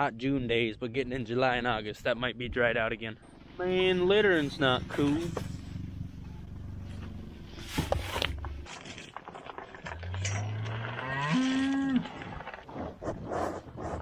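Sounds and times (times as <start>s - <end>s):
cow mooing: 10.2s - 12.2s.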